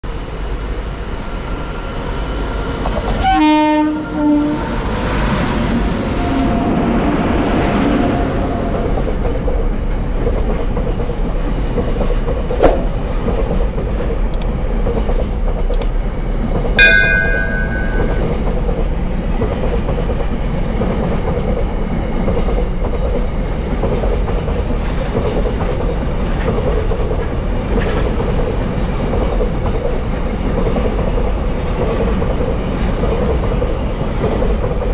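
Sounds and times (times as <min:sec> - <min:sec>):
train wagons rumbling on rails: 0:00.2 - 0:34.9
train horn: 0:03.2 - 0:05.0, 0:06.1 - 0:07.1, 0:07.7 - 0:09.0
sharp metal clank: 0:16.8 - 0:18.5
high-pitched tone: 0:16.8 - 0:18.6.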